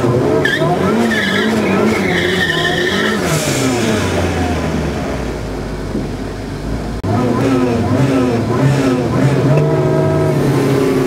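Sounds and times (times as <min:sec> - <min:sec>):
car engine revving: 0:00.0 - 0:11.0
tyres squealing: 0:00.4 - 0:03.7.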